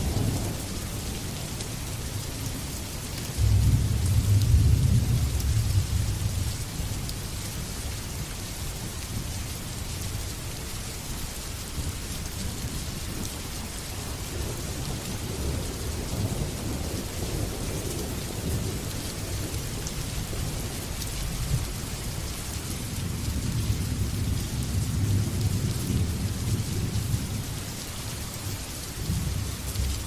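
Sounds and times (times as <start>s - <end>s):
rain hissing down: 0.0s - 30.0s
thunder rumbling: 3.4s - 6.5s.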